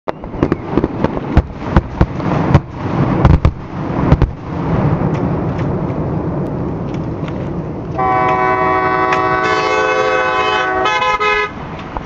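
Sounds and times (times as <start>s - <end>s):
continuous rumble: 0.1s - 12.0s
fireworks bangs: 0.2s - 6.2s.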